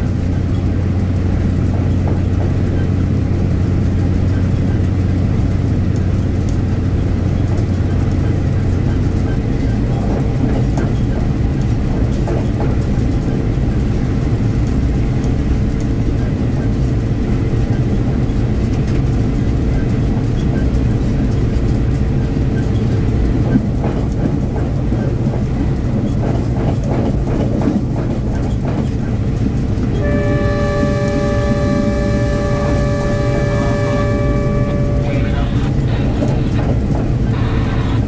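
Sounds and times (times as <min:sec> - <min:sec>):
diesel train engine drone: 0:00.0 - 0:38.0
wheels clicking over rail joints: 0:00.0 - 0:38.0.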